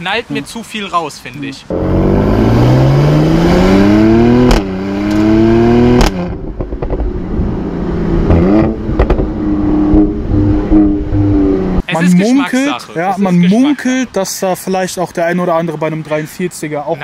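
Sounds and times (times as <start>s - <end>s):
car engine accelerating hard: 1.7s - 11.8s.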